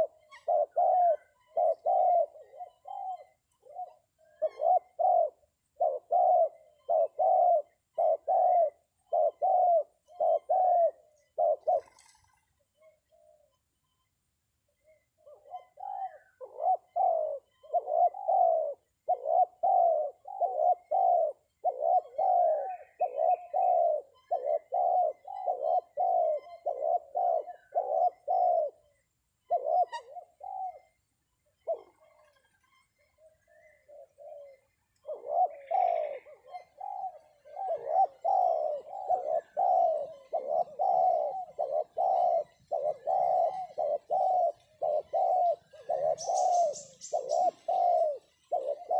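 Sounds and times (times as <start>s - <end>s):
dove cooing: 0.0s - 13.6s, 14.8s - 48.9s.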